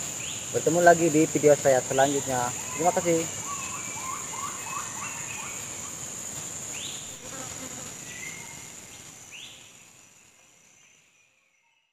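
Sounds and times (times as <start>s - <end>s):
insects droning: 0.0s - 11.9s.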